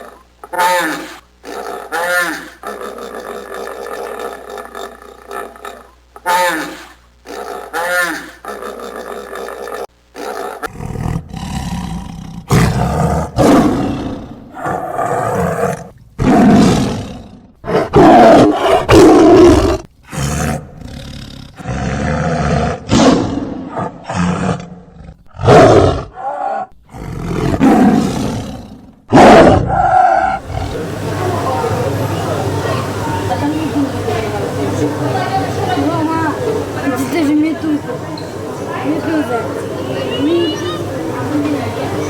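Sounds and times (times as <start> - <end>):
large wild animal roaring: 6.5 - 31.8.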